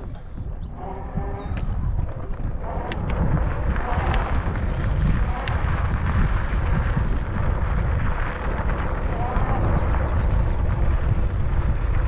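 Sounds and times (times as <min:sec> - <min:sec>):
wind buffeting microphone: 0:00.0 - 0:12.0
sharp clicks: 0:02.8 - 0:03.2.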